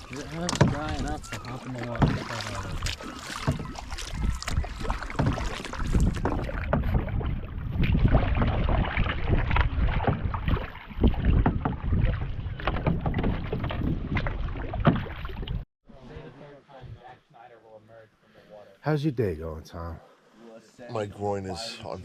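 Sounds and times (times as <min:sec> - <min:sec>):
canoe knocks and bumps: 0:00.0 - 0:15.6
water splashing and sloshing: 0:00.0 - 0:15.7
wind rumble on microphone: 0:02.6 - 0:15.6.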